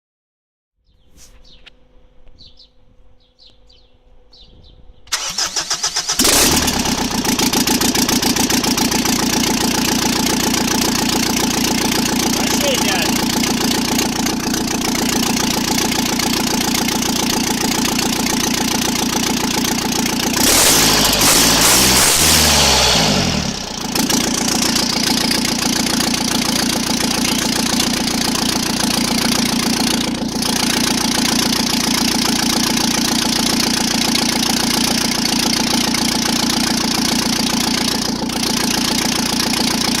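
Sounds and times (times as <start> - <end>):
diesel engine idling and revving: 5.1 - 40.0.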